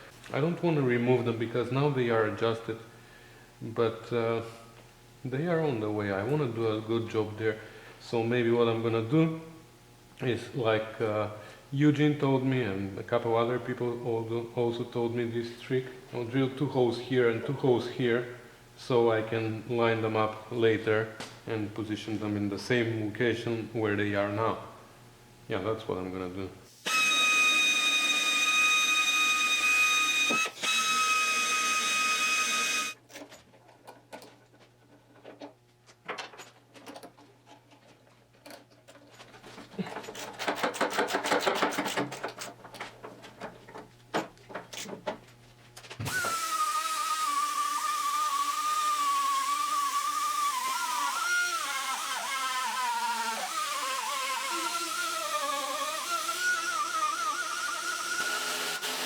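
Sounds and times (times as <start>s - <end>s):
electric drill whining: 26.8s - 33.0s, 46.0s - 59.0s.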